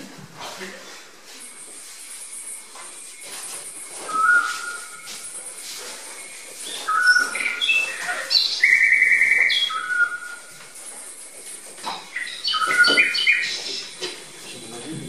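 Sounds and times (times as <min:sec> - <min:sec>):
bird singing whistled notes: 0:03.9 - 0:05.4, 0:06.2 - 0:10.5, 0:12.0 - 0:14.1.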